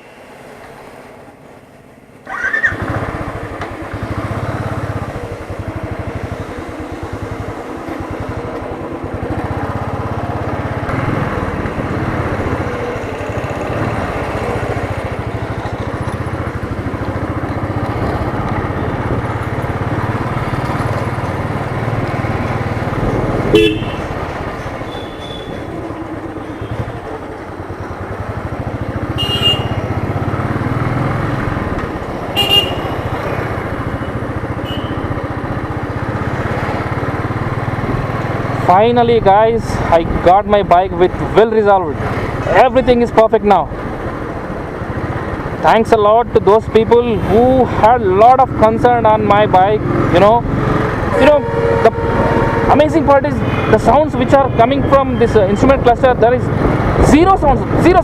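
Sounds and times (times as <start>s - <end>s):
motorcycle engine running: 2.3s - 42.8s
horn toots: 23.5s - 24.2s, 29.2s - 29.9s, 32.3s - 33.1s, 34.6s - 35.1s, 51.0s - 55.5s.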